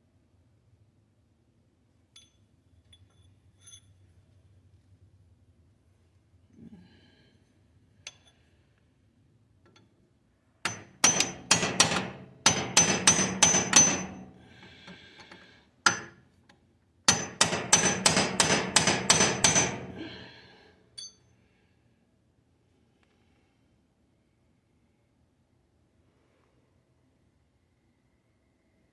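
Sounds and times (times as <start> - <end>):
hammer striking metal punch: 10.7 - 14.4, 15.9 - 16.1, 17.1 - 20.2.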